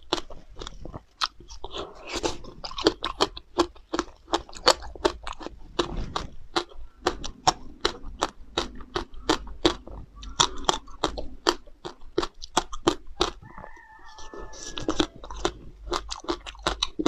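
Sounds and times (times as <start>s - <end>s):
crunchy chewing of frozen fruit: 0.0s - 17.0s.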